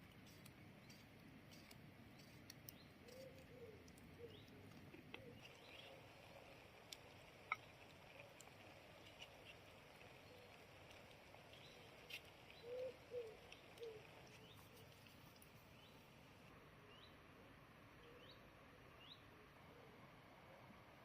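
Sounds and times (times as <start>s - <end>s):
small bird chirps: 5.2s - 6.0s.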